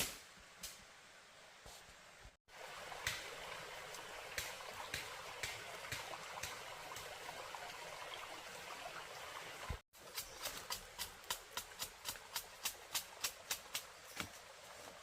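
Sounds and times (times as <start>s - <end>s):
water trickling: 2.5s - 9.8s.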